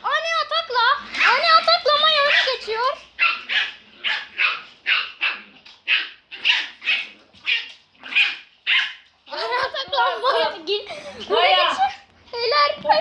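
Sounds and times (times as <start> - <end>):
small dogs barking: 1.0 - 10.6.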